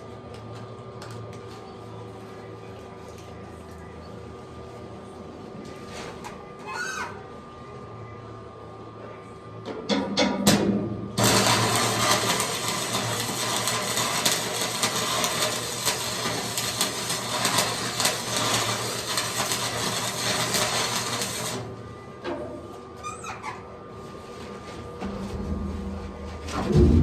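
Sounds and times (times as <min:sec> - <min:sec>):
electric arc welding crackle: 0:11.2 - 0:21.7.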